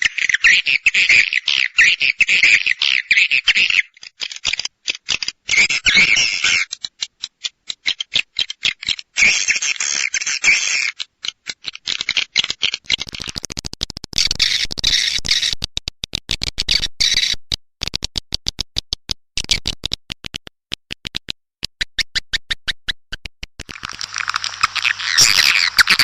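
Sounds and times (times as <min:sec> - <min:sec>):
fast sharp clicks: 0:11.0 - 0:26.0
high chirping twitter: 0:24.1 - 0:26.0.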